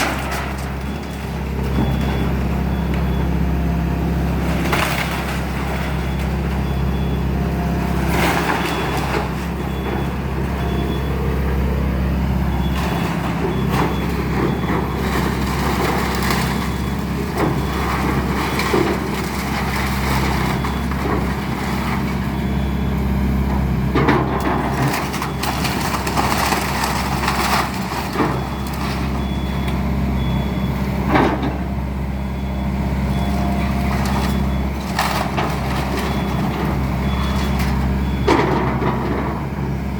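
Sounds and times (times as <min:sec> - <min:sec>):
wood and debris breaking: 0:00.0 - 0:03.2, 0:04.2 - 0:07.1, 0:07.9 - 0:10.2, 0:12.6 - 0:22.4, 0:23.9 - 0:29.6, 0:33.2 - 0:39.4
excavator diesel engine: 0:00.0 - 0:39.9.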